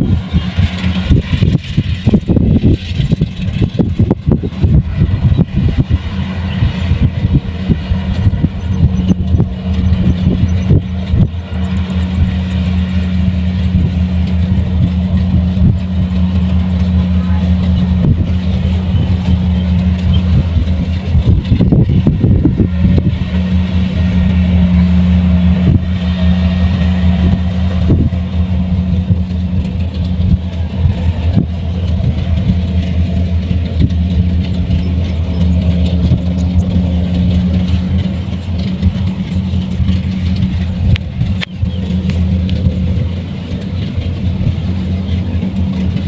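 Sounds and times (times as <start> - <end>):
harvester engine humming: 0.0 - 46.0
machine knocks and rattles: 0.2 - 46.0.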